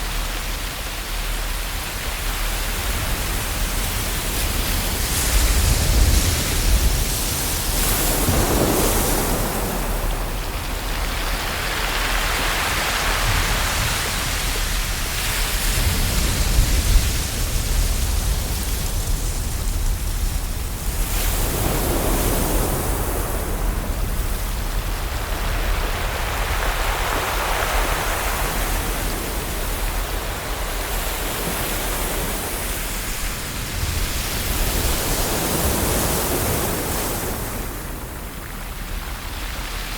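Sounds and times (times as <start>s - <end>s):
ocean waves breaking: 0.1s - 39.9s.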